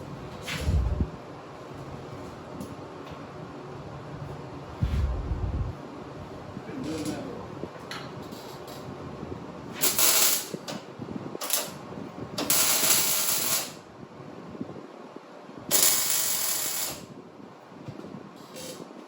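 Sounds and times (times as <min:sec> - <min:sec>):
hissing shop tool bursts: 0:15.7 - 0:17.1.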